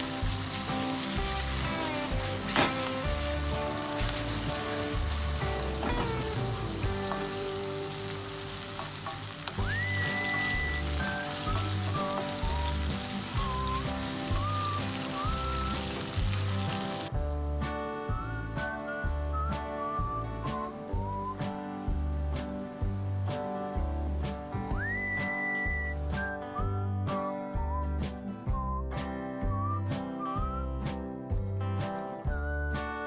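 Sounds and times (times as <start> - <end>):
food sizzling in hot oil: 0.0 - 17.2, 18.1 - 26.2.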